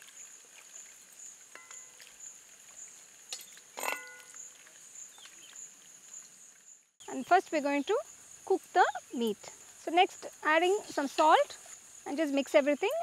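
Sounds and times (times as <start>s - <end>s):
crickets droning: 0.0s - 13.0s
steel ladle clinking on pan: 1.5s - 2.0s, 3.8s - 4.4s.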